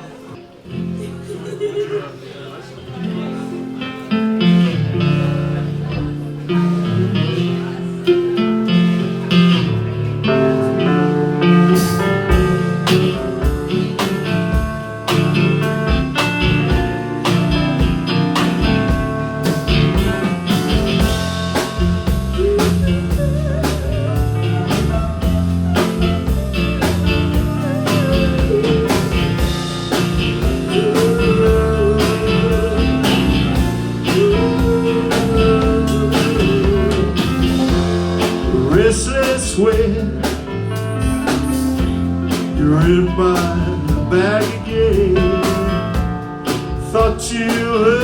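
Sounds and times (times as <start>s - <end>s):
bending lead guitar melody: 2.8s - 48.0s
bass guitar: 3.0s - 48.0s
drum kit beat: 11.2s - 48.0s.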